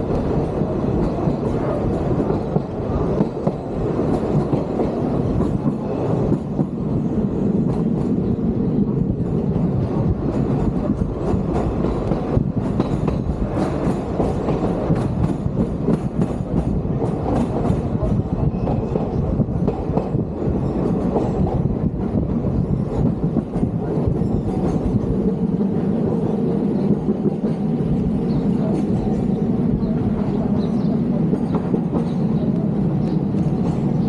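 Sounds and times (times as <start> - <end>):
train rumbling along track: 0.0 - 34.0
wheels clicking on rails: 9.0 - 25.7.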